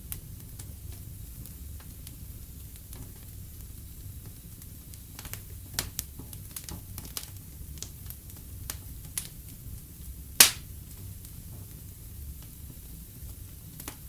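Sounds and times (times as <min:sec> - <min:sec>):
fireplace fire crackling: 0:00.0 - 0:14.0
sharp pops of fire: 0:10.3 - 0:11.4.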